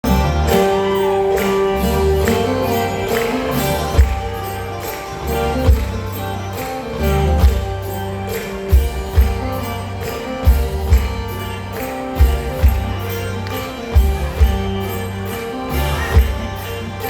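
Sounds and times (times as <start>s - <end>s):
band music with jingling beat: 0.0s - 17.0s.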